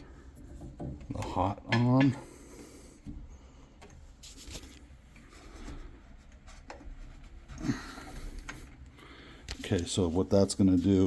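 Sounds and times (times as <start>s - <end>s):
soft clicks of valves: 0.0s - 4.1s.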